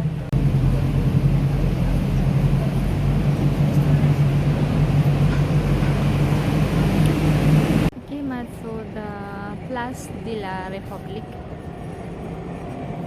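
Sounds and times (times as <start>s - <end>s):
boat engine humming: 0.0s - 13.0s
water washing around hull: 0.1s - 7.9s.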